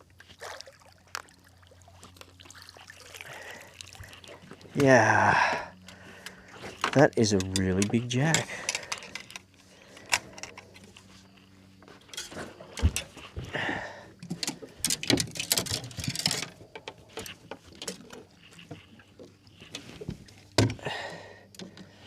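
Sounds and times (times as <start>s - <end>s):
knocks and scuffs in a boat: 10.8s - 20.9s.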